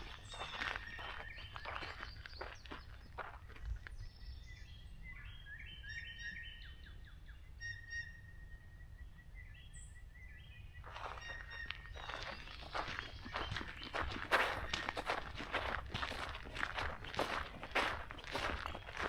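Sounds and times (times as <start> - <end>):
footsteps on forest trail: 0.0 - 4.4, 10.8 - 19.0
birds singing: 0.0 - 19.0.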